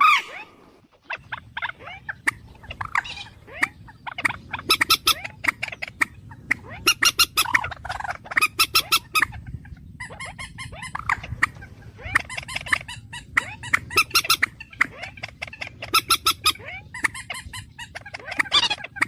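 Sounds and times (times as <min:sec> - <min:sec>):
bird chirps and trills: 0:00.0 - 0:19.0.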